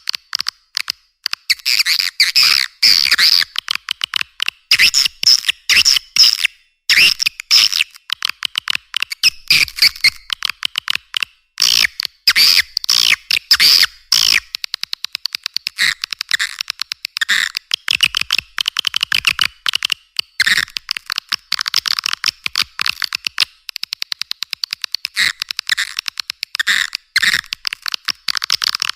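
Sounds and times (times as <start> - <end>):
rapid bird clicks: 7.4 - 28.9.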